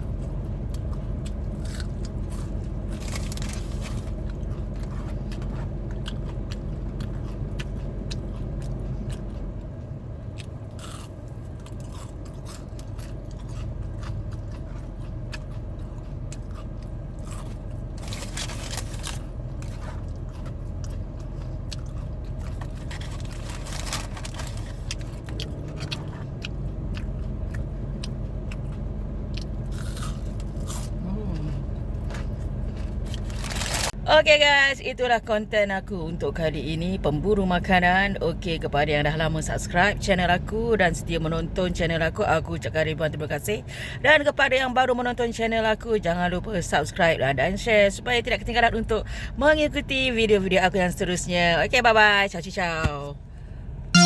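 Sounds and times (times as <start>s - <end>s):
person chewing crunchy food: 0.0s - 34.0s
steady low hum: 0.0s - 54.0s.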